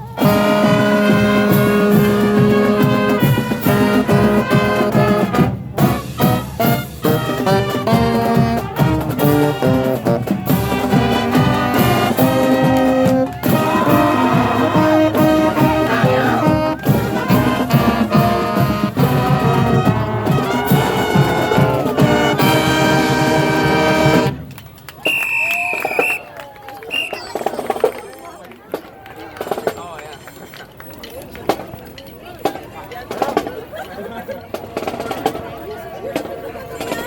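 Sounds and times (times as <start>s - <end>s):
trumpets and trombones: 0.0s - 24.5s
marching band playing: 0.0s - 37.0s.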